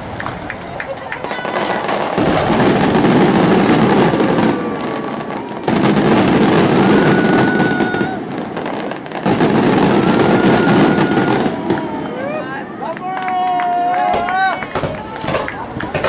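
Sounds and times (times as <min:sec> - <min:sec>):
firework whistling tones: 0:00.0 - 0:12.5
fireworks crackling and banging: 0:00.0 - 0:16.0.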